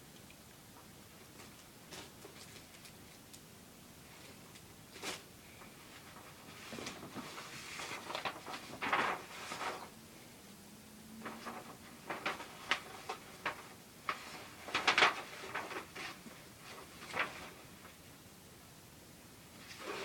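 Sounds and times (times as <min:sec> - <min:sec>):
plastic packaging rustling: 0:04.4 - 0:09.9, 0:11.2 - 0:18.0.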